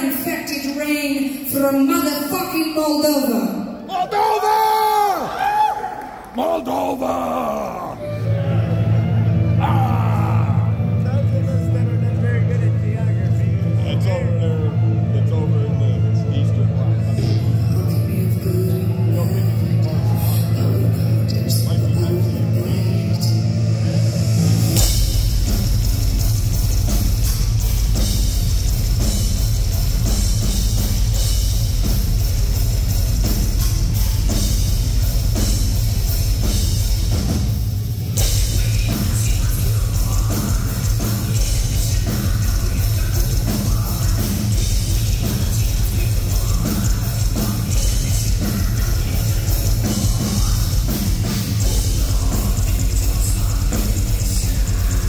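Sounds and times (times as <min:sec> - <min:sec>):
heavy metal band playing live: 0:07.0 - 0:13.0, 0:14.8 - 0:55.0
distorted guitars: 0:07.0 - 0:55.0
pounding drum kit: 0:09.5 - 0:11.0, 0:24.0 - 0:55.0.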